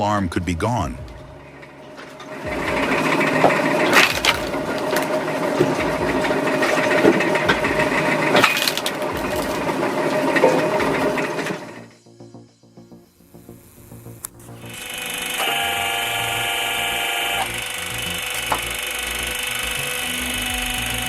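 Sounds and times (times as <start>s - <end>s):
wood-cutting machine humming: 1.3s - 11.8s, 13.3s - 21.0s
wood cracking and knocking: 1.9s - 10.6s.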